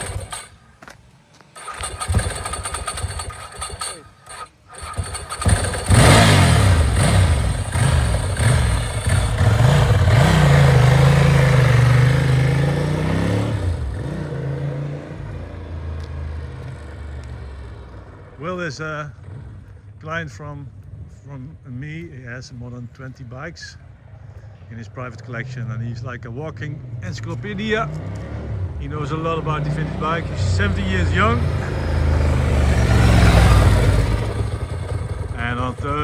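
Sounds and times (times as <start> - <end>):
motorcycle engine revving: 0.0 - 1.0, 1.6 - 20.0, 25.2 - 36.0
motorcycle engine cranking: 0.0 - 14.6, 30.0 - 36.0.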